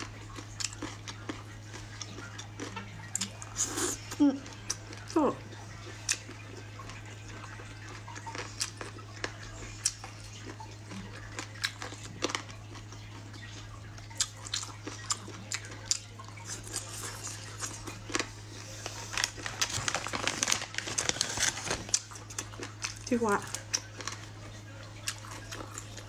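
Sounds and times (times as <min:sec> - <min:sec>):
mouth clicks and smacks chewing: 0:00.0 - 0:05.2.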